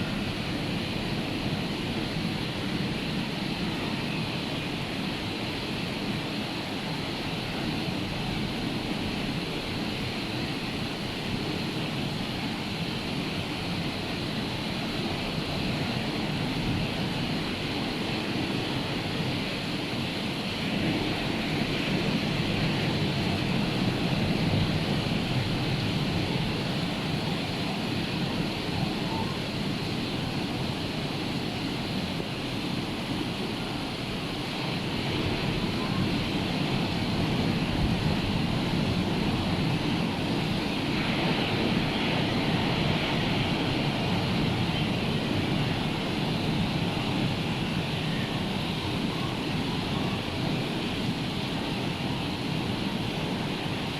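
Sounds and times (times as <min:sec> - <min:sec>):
rough sea surf breaking: 0:13.0 - 0:53.9.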